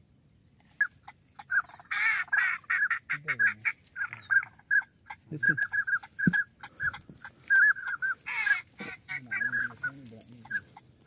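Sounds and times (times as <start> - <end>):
wavering bird call: 0.8 - 10.9
high-pitched bird notes: 2.7 - 10.7.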